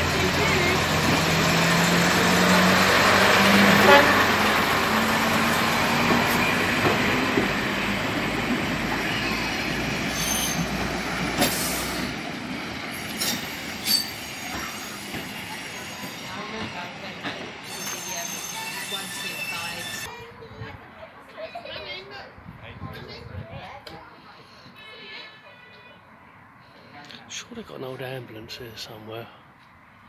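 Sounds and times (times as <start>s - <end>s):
diesel train engine drone: 0.0s - 20.1s
train wheels on rails: 0.0s - 20.2s.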